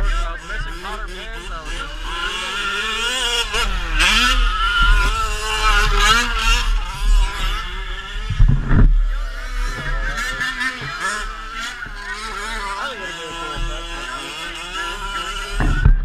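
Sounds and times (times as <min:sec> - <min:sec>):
truck engine revving: 0:00.0 - 0:16.0
heavy low thump: 0:08.3 - 0:09.2, 0:15.6 - 0:16.0.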